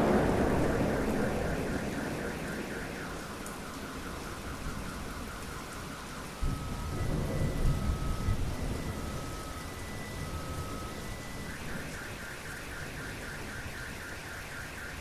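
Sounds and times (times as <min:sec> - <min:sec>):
thunder rumbling: 0:00.0 - 0:11.9
steady rain: 0:00.0 - 0:15.0.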